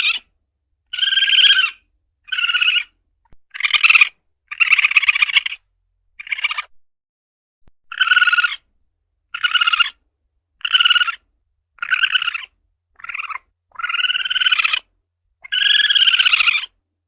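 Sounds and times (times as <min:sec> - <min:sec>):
civet harsh calls: 0:00.0 - 0:00.3, 0:00.9 - 0:05.6, 0:06.2 - 0:06.7, 0:07.9 - 0:08.7, 0:09.3 - 0:10.0, 0:10.6 - 0:16.8.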